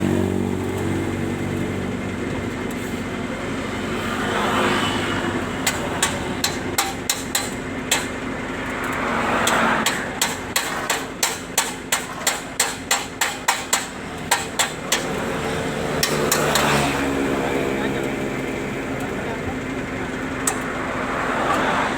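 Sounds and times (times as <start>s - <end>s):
low engine hum: 0.0s - 10.2s
hammer on metal: 5.6s - 8.2s, 9.4s - 15.2s, 16.0s - 16.9s.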